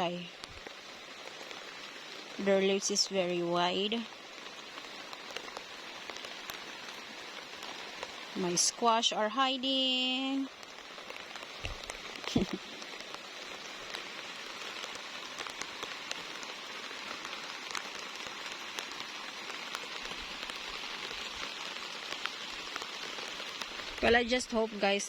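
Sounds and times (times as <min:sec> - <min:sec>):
raindrops ticking close by: 0:00.0 - 0:25.0
steady rain hiss: 0:00.0 - 0:25.0.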